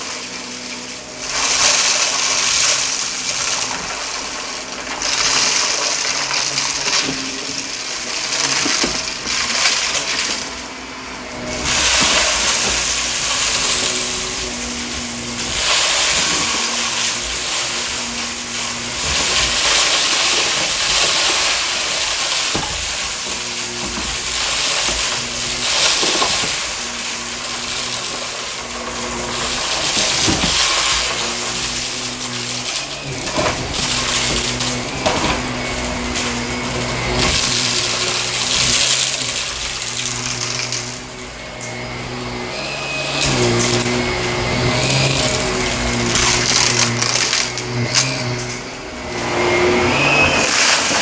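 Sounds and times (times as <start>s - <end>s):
vacuum cleaner on carpet: 0.0s - 51.0s
grit crackles and clicks: 43.2s - 48.7s.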